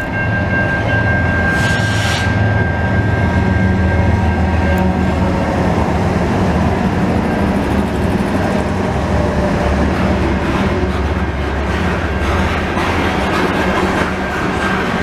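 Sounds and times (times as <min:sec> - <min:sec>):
locomotive engines droning: 0:00.0 - 0:15.0.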